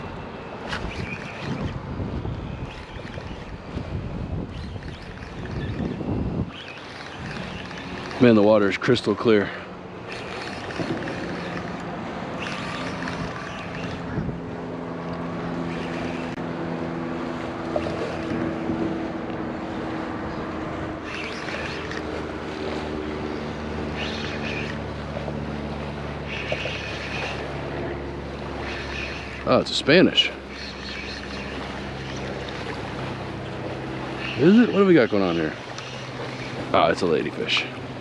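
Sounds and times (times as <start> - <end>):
wind noise on microphone: 0.0 - 8.2, 12.4 - 14.7
engine running: 0.0 - 38.0.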